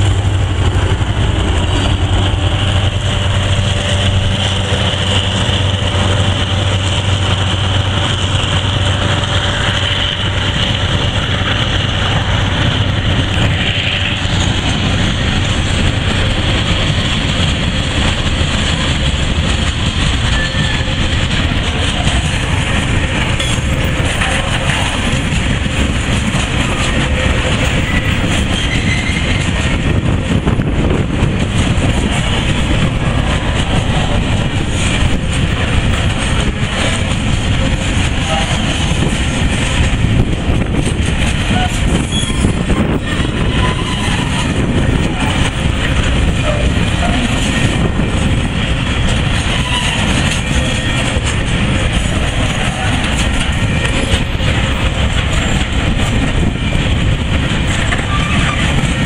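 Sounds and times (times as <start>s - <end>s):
low diesel drone: 0.0s - 28.3s
steel wheels rattling on rail: 0.0s - 59.0s.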